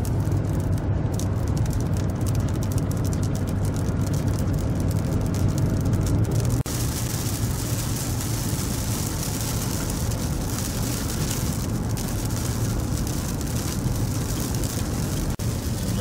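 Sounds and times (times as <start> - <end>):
car cabin road and engine noise: 0.0 - 16.0
tyres on wet road: 0.0 - 16.0.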